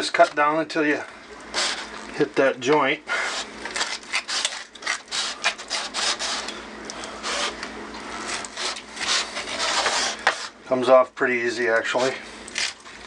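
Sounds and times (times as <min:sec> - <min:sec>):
knife sawing through chicken: 0:03.1 - 0:06.6, 0:07.2 - 0:07.6, 0:08.3 - 0:10.6.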